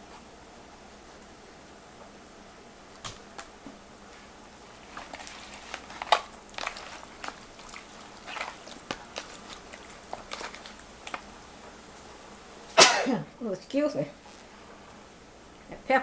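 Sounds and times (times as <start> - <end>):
wet squishing of raw chicken: 4.7 - 11.6.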